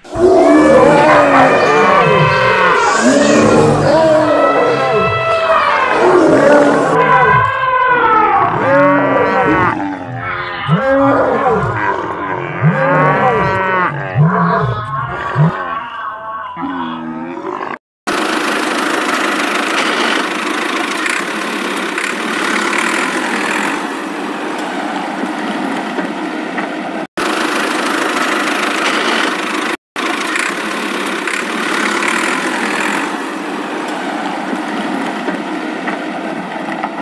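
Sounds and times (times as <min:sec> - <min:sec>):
vehicle engine running: 0:18.1 - 0:37.0.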